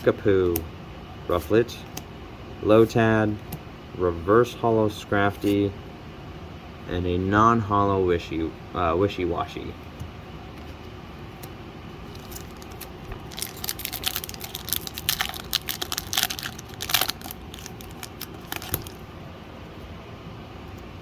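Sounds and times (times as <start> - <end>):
foil wrapper tearing and crinkling: 12.1 - 19.0.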